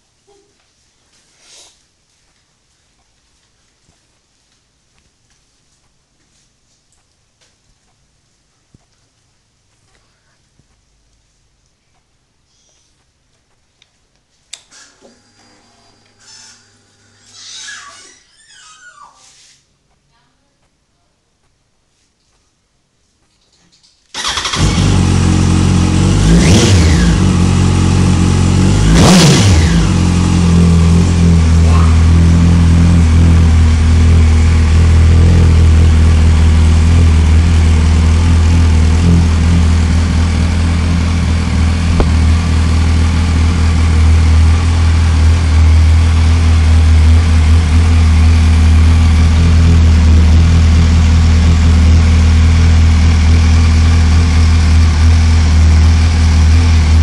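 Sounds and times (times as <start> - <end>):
motorcycle engine revving and idling: 24.2 - 57.0.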